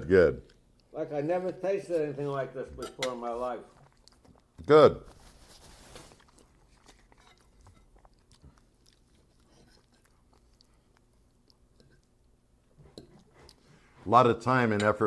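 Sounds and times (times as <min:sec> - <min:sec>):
faint chewing: 0:00.4 - 0:01.0, 0:02.8 - 0:14.0.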